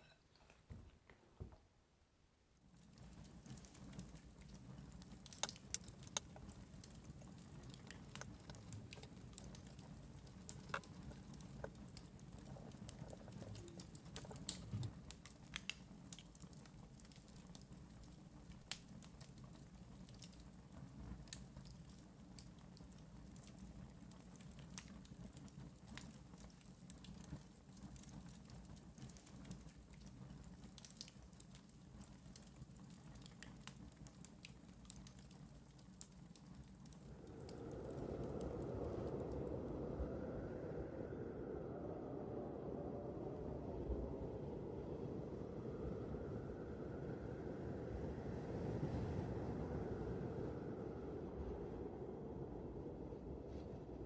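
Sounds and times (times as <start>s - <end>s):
wood fire crackling: 2.7s - 39.9s
low steady rumble: 3.1s - 16.1s, 36.3s - 54.0s.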